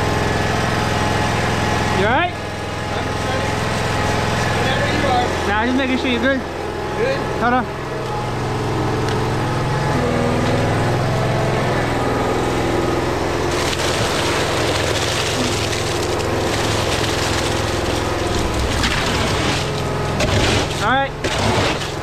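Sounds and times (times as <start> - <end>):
large engine running: 0.0 - 22.0
rushing scraping noise: 18.1 - 22.0.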